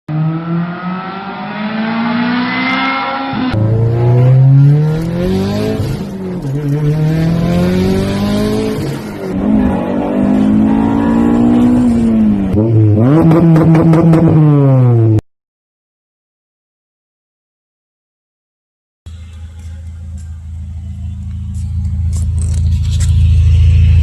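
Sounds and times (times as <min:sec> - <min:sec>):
car engine accelerating hard: 0:00.1 - 0:15.2.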